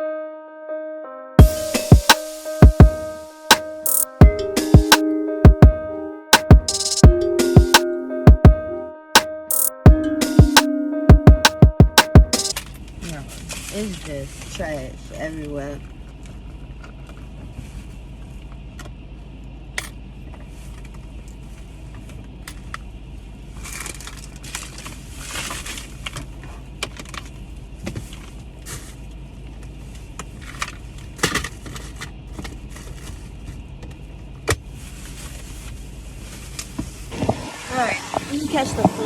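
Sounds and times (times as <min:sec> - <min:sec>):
trash rustling and crinkling: 0:12.5 - 0:16.5, 0:23.5 - 0:39.0.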